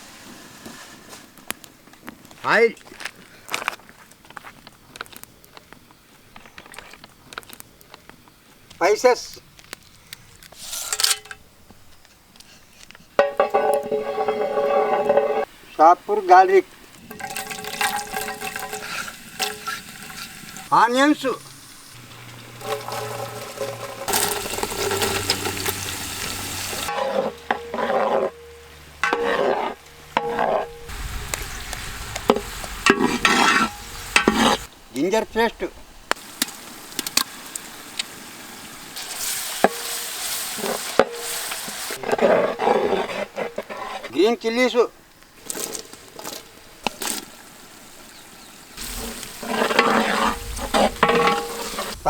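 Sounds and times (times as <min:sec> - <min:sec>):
onions sizzling in hot oil: 0:13.2 - 0:34.7, 0:36.0 - 0:42.1, 0:45.4 - 0:52.0.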